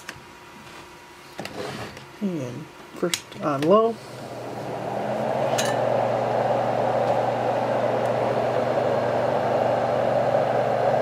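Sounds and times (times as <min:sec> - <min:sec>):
fan-like rush of air: 0:03.9 - 0:11.0.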